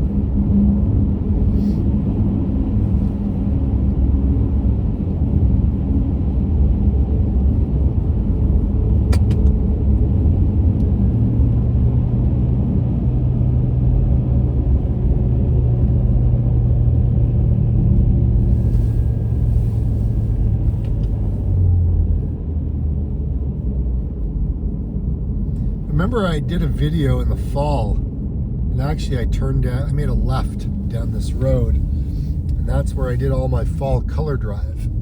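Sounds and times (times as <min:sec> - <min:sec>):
car road and engine rumble: 0:00.0 - 0:35.0
steady low hum: 0:00.0 - 0:35.0
sharp click: 0:09.1 - 0:09.6.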